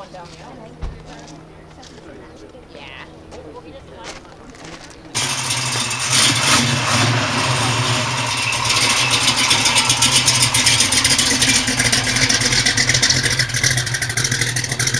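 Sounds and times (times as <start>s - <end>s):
car engine running: 4.8s - 14.9s.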